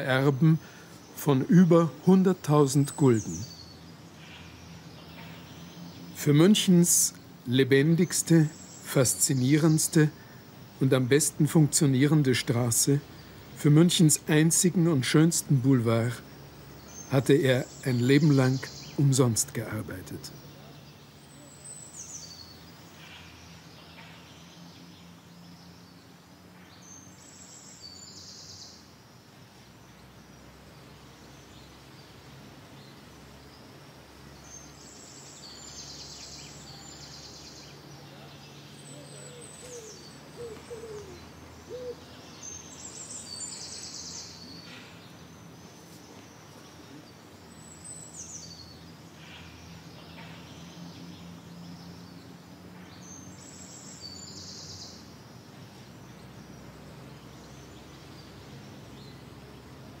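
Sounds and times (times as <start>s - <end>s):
bird chirping phrase: 0.0s - 28.9s, 34.3s - 55.1s
lower bird calls: 34.4s - 52.3s.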